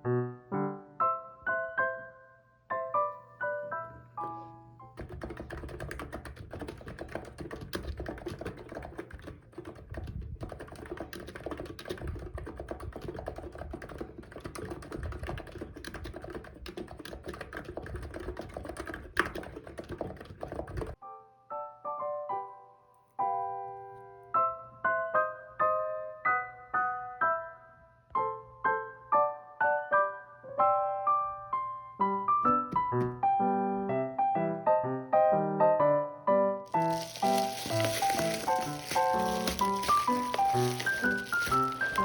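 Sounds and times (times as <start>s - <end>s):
soft piano music: 0.0s - 6.0s, 20.9s - 42.0s
fast keyboard typing: 5.0s - 21.0s, 36.7s - 42.0s.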